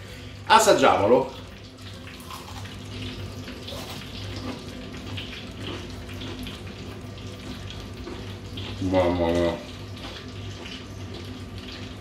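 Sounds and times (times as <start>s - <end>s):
person chewing crunchy food: 2.2s - 2.8s, 3.6s - 6.6s.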